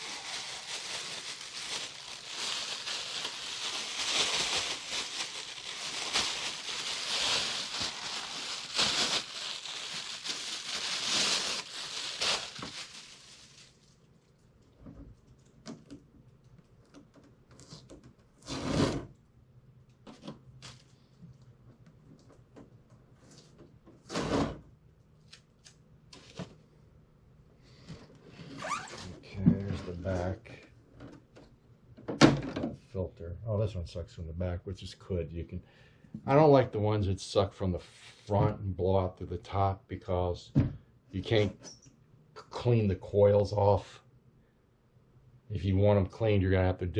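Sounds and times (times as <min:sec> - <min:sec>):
plastic rustling and crinkling: 0:00.0 - 0:16.0, 0:20.0 - 0:21.4.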